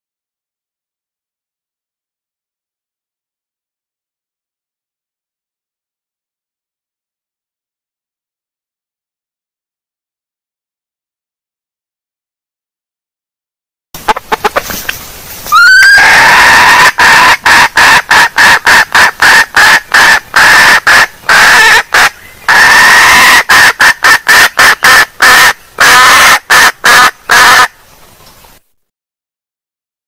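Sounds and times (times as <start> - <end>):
hen clucking calls: 14.0 - 27.8.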